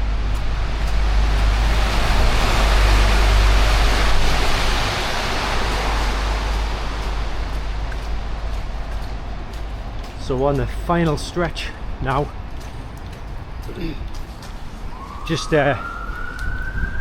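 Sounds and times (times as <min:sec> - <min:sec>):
wind buffeting microphone: 0:00.0 - 0:11.1, 0:11.8 - 0:17.0
tyre hiss on wet road: 0:00.4 - 0:10.0.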